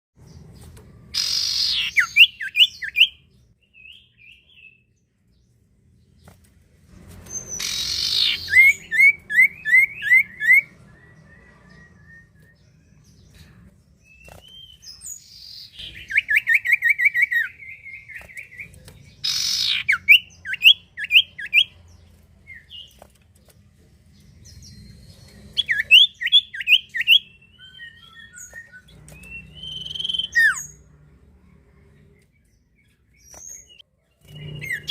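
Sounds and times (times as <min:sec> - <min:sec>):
bird singing whistled phrases: 0:24.7 - 0:30.8.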